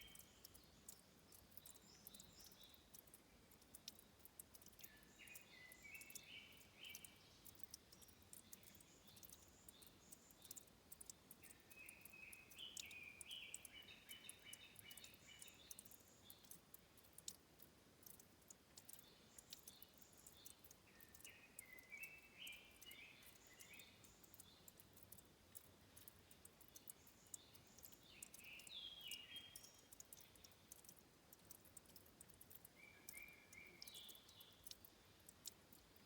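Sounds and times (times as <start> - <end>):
faint clicks: 0.0 - 36.0
low hiss: 0.0 - 36.0
songbird singing: 0.0 - 36.0.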